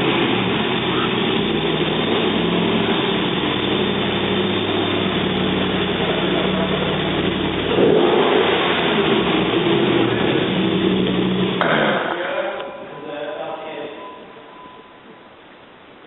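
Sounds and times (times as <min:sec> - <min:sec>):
engine running with rushing noise: 0:00.0 - 0:13.1.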